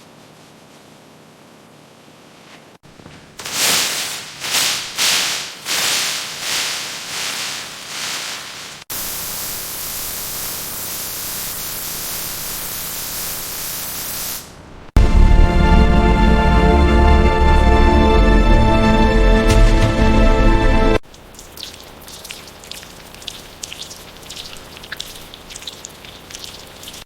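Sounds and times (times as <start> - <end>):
steady hiss: 3.0 - 14.6
short loud hiss bursts: 3.4 - 14.6.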